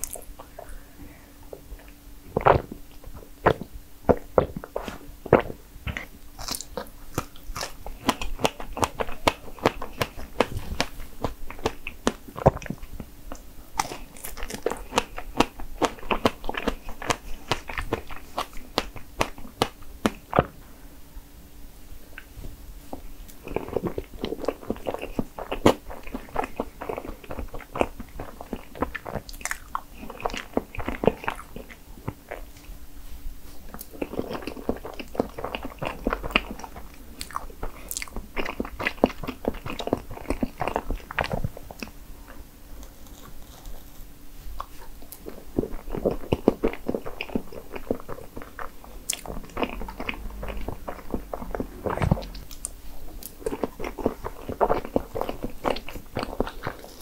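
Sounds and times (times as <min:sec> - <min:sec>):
wet chewing and mouth clicks: 0:00.0 - 0:00.8, 0:01.5 - 0:20.6, 0:22.9 - 0:32.8, 0:33.6 - 0:57.0.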